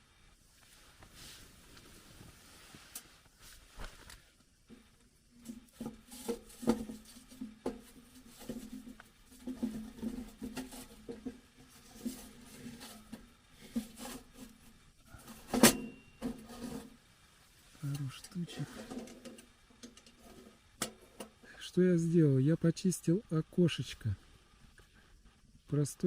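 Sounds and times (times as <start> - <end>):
wood stove being tended: 0.4 - 22.4.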